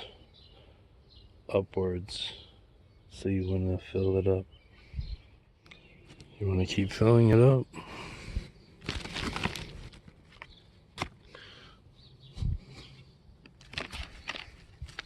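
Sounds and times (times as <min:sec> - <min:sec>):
dirt rustling and scraping: 0:08.8 - 0:11.2, 0:13.5 - 0:15.0.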